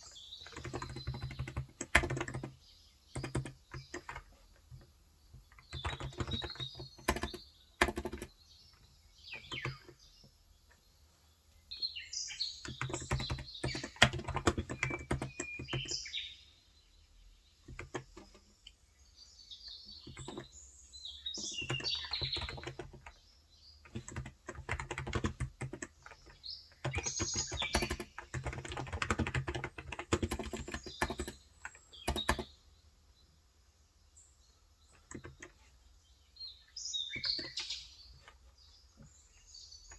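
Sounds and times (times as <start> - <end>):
birds chirping: 0.0 - 39.9
keyboard typing: 0.4 - 8.4, 9.3 - 10.0, 12.6 - 16.0, 17.6 - 18.5, 19.8 - 20.6, 21.3 - 23.2, 23.8 - 32.5, 34.9 - 35.8, 37.2 - 38.4.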